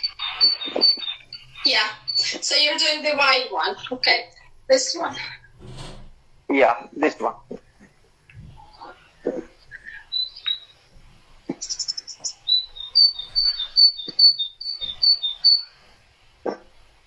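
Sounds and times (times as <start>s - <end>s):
small bird singing: 0.0s - 4.2s, 8.4s - 16.6s.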